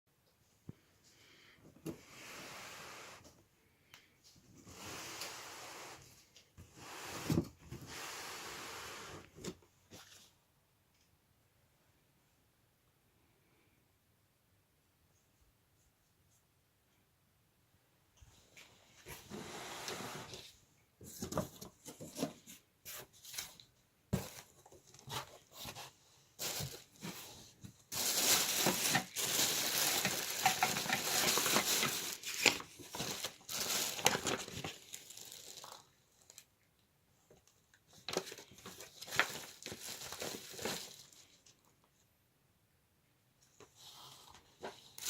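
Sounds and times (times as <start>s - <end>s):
packaging rustling and crinkling: 21.2s - 36.5s, 37.9s - 41.6s.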